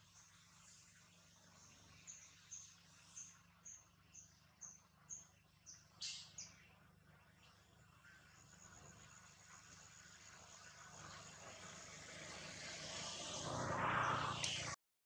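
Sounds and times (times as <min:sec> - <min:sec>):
faint bird chirping: 0:00.0 - 0:11.7.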